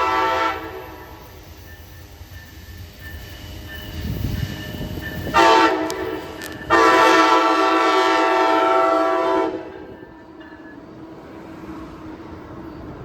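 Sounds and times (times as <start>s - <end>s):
train air horn blasts: 0.0s - 1.3s, 5.3s - 9.9s
passing train rumble: 0.0s - 13.0s.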